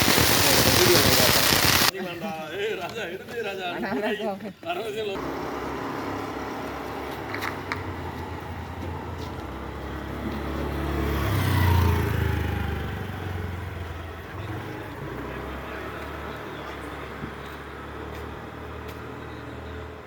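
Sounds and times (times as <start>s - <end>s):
vehicle passing by: 5.2s - 20.0s.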